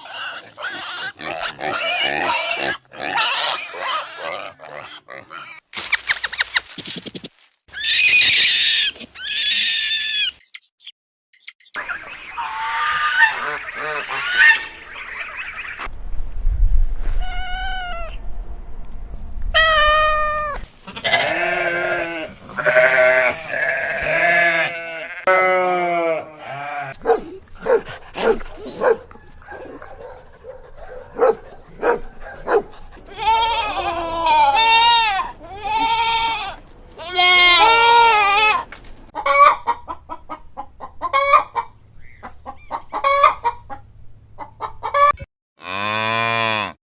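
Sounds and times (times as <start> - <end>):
goats bleating: 20.3 - 27.0, 32.8 - 38.7.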